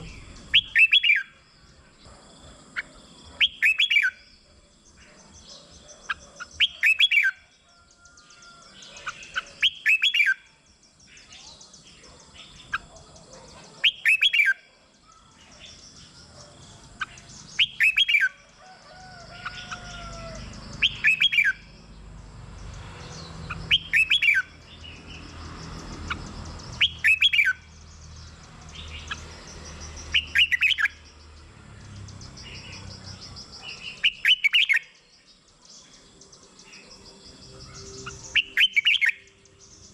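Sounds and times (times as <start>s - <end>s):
bird singing whistled phrases: 0.0s - 1.3s, 3.4s - 4.2s, 6.6s - 7.4s, 9.3s - 10.5s, 13.8s - 14.6s, 17.6s - 18.4s, 20.8s - 21.6s, 23.7s - 24.5s, 26.8s - 27.6s, 30.2s - 31.0s, 33.8s - 34.9s, 37.8s - 39.3s.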